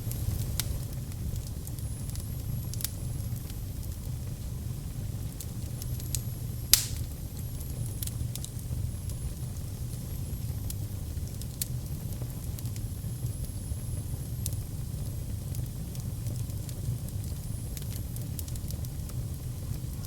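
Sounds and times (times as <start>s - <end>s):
wood fire crackling: 0.0s - 20.0s
loud pop from fire: 6.1s - 7.3s.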